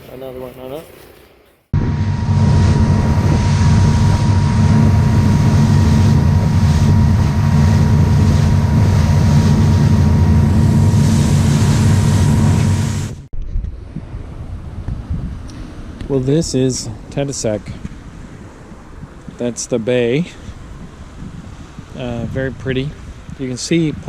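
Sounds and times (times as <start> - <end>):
loud engine drone: 1.7 - 13.3
wind on microphone: 1.8 - 24.0.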